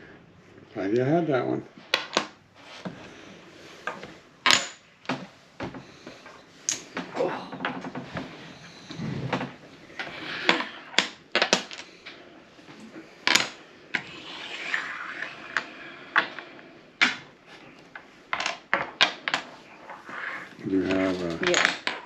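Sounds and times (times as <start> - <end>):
game pieces clattering on table: 1.9 - 2.4, 9.3 - 12.2, 13.2 - 14.2, 17.9 - 20.1, 20.8 - 22.0
rustling of handling pieces: 15.4 - 22.0.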